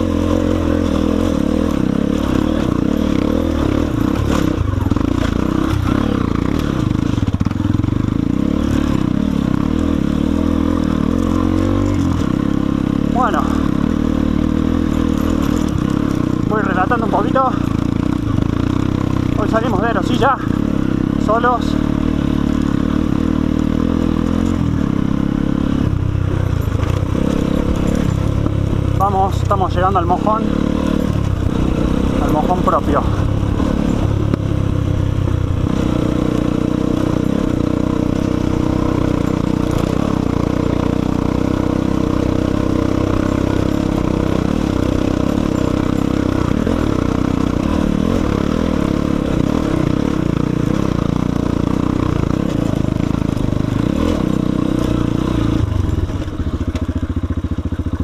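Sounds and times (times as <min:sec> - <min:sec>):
engine clatter: 0:00.0 - 0:58.0
motorcycle engine under throttle: 0:00.0 - 0:58.0
rattling: 0:26.2 - 0:40.6.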